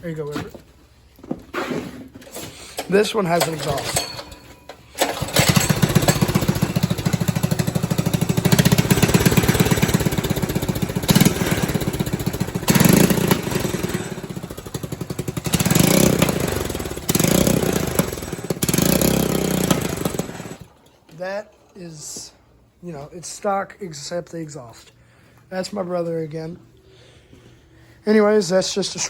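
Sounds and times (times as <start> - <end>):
small engine running and revving: 5.0 - 20.7.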